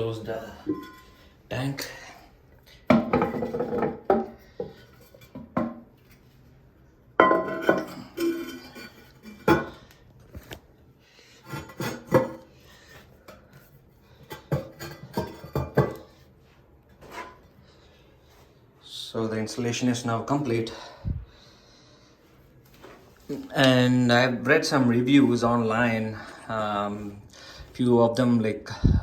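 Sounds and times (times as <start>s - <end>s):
porcelain lid clinking and scraping: 0.6s - 1.2s, 7.2s - 9.8s, 11.4s - 12.5s, 14.2s - 16.1s.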